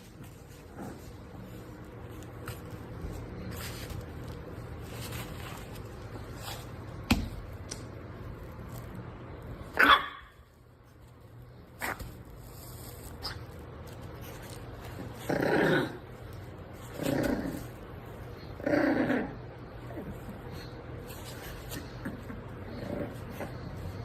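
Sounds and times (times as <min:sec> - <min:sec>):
dog barking: 0:09.8 - 0:10.3.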